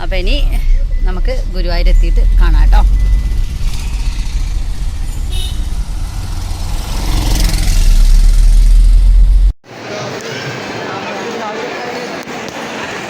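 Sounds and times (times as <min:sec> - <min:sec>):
car road noise rumble: 0:00.0 - 0:09.6.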